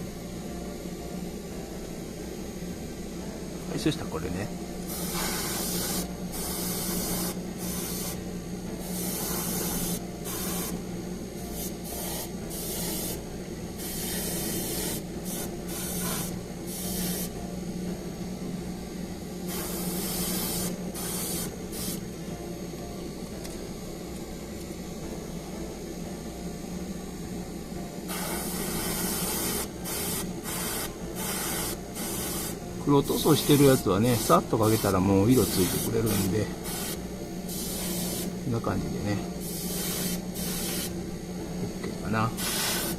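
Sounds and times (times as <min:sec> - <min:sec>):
steady low hum: 0:00.0 - 0:42.9
airbrush hissing bursts: 0:04.9 - 0:08.2, 0:08.8 - 0:10.8, 0:11.5 - 0:17.4, 0:19.5 - 0:22.1, 0:28.1 - 0:38.4, 0:39.4 - 0:41.0, 0:42.3 - 0:42.9.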